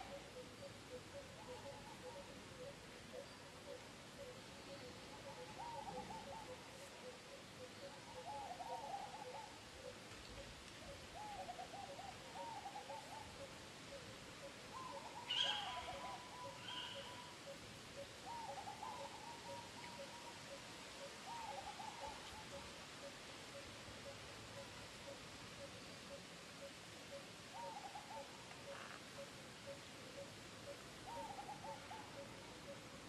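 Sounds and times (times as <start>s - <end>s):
birds warbling and hooting: 14.4s - 22.7s, 27.1s - 32.8s.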